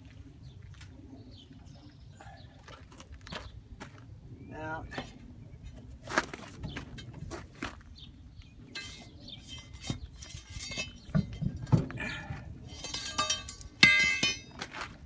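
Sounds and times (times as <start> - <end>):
metal parts clinking: 8.8 - 11.7, 12.7 - 14.6.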